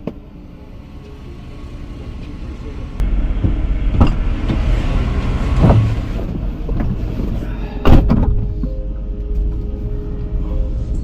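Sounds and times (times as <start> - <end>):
vehicle engine low rumble: 0.0 - 11.0
thump: 7.8 - 8.5.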